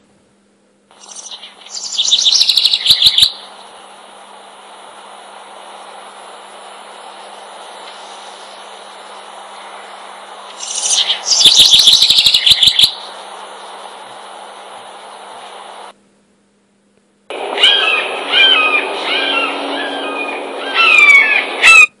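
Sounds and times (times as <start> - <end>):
bird chirping: 0.9 - 3.8, 10.5 - 13.2, 17.4 - 22.0
steady hiss: 0.9 - 16.0, 17.3 - 21.7
bird chattering trill: 1.0 - 3.7, 10.5 - 13.2, 17.5 - 22.0.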